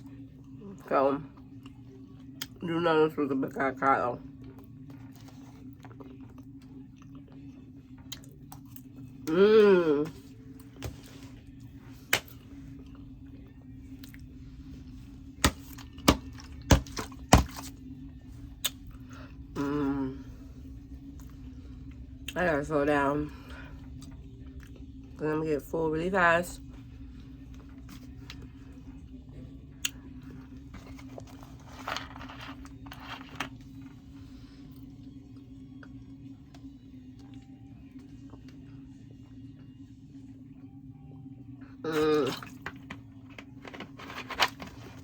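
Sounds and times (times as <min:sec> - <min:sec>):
low steady hum: 0:00.0 - 0:45.0
chewing: 0:04.4 - 0:09.0.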